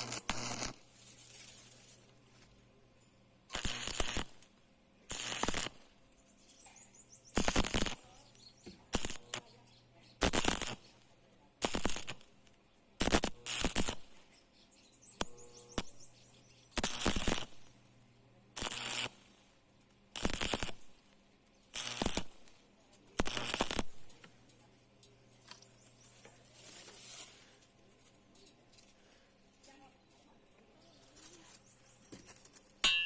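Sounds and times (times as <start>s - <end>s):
welding arc crackling: 0.0s - 2.0s, 3.5s - 5.9s, 7.3s - 8.3s, 8.9s - 9.6s, 10.2s - 11.0s, 11.6s - 12.4s, 13.0s - 14.2s, 16.8s - 17.8s, 18.6s - 19.4s, 20.1s - 21.0s, 21.7s - 24.3s.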